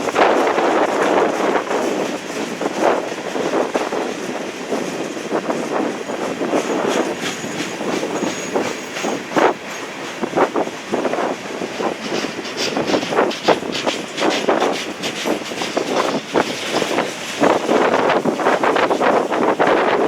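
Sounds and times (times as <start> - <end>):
train wheels clicking over rail joints: 0.0 - 20.0
wind noise on microphone: 0.0 - 20.0
high wheel squeal: 6.5 - 10.0.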